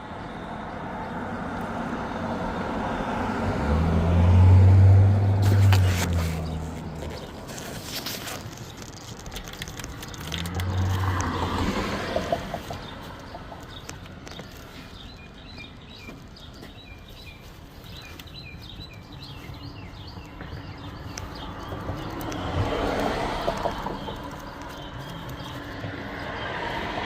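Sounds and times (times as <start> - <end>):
outdoor background noise: 0.0 - 27.0
small bird chirping: 12.0 - 26.9.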